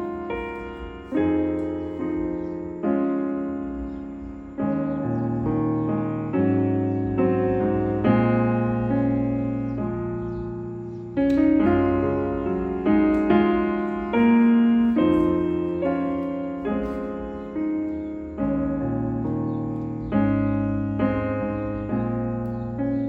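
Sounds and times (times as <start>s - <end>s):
soft piano chords: 0.0s - 23.0s.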